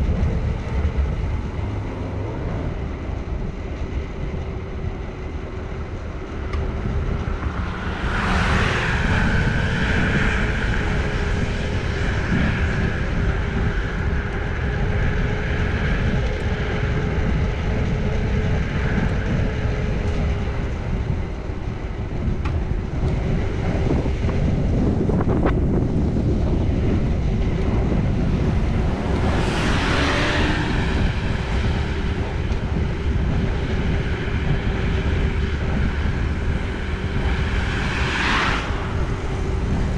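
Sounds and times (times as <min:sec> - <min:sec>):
vehicles passing: 0:00.0 - 0:39.9
wind rumbling on microphone: 0:00.0 - 0:39.9.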